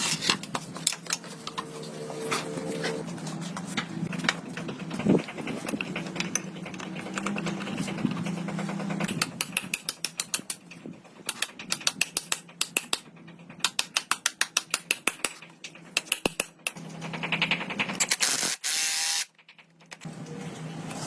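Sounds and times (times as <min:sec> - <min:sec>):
rapid mechanical clicks: 0:03.7 - 0:20.1.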